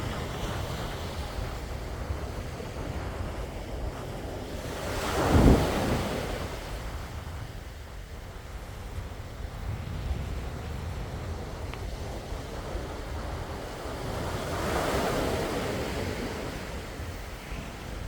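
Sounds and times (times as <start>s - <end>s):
wind rumbling on microphone: 0.0s - 18.0s
sea waves breaking: 3.5s - 7.0s, 11.4s - 18.0s.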